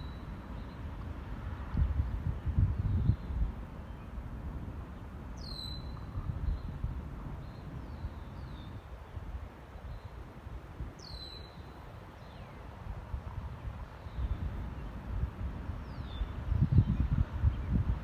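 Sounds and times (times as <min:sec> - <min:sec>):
wind rumbling on microphone: 0:00.0 - 0:18.0
faint bird chirps: 0:05.4 - 0:06.8, 0:11.0 - 0:12.6.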